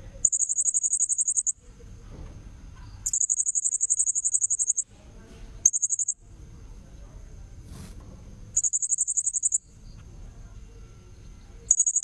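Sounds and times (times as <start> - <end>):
faint steady high tone: 0.2 - 1.6, 3.0 - 4.9, 5.6 - 6.3, 8.6 - 12.0
shrill parrot trills: 0.3 - 1.6, 3.0 - 4.8.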